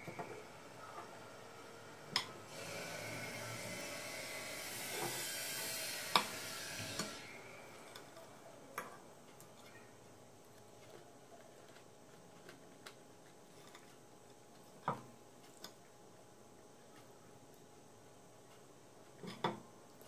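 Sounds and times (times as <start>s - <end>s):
steady hiss: 0.0s - 8.8s.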